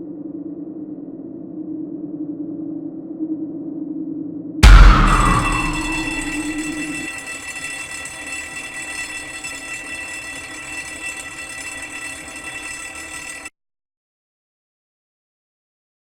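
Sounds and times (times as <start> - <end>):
loud strike: 4.6 - 7.2
long ringing tone: 4.6 - 13.5.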